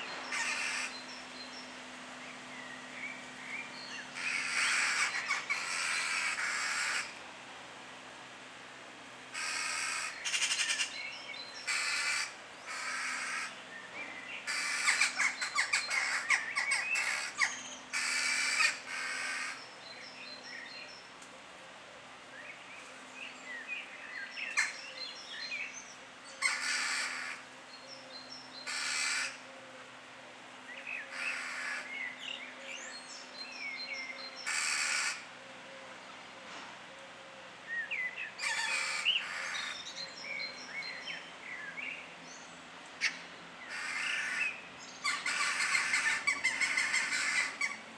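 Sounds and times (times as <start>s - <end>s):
birds cawing: 0.0s - 1.1s, 4.1s - 7.2s, 9.3s - 11.0s, 11.6s - 13.6s, 14.4s - 19.6s, 26.4s - 27.5s, 28.6s - 29.4s, 31.0s - 32.1s, 34.4s - 35.3s, 38.4s - 39.8s, 43.0s - 47.9s.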